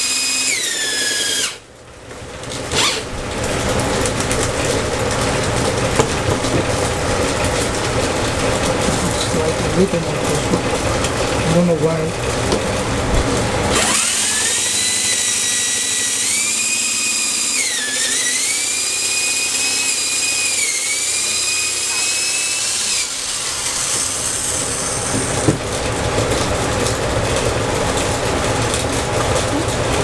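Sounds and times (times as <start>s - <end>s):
drill bit grinding in wood: 0.0s - 1.7s, 2.6s - 3.2s, 13.6s - 25.6s
electric drill motor whine: 0.0s - 1.7s, 2.6s - 3.4s, 13.6s - 25.6s.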